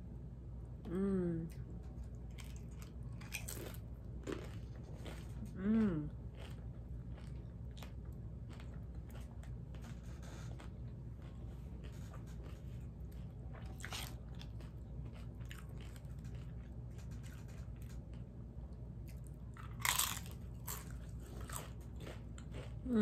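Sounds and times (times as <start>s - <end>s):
steady low hum: 0.0s - 23.0s
crunchy taco chewing: 1.8s - 23.0s.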